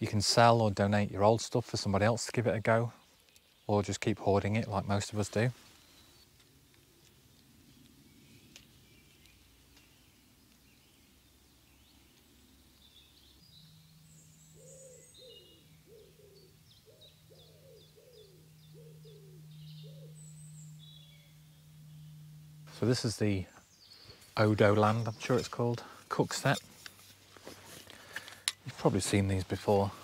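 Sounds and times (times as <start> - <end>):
faint low hum: 0.0 - 30.0
small birds chirping: 1.9 - 30.0
bird calling falling notes: 13.3 - 25.7.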